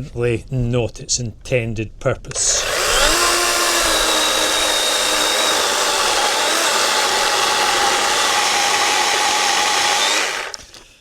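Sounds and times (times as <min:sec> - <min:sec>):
chainsaw cutting wood: 0:02.4 - 0:10.9.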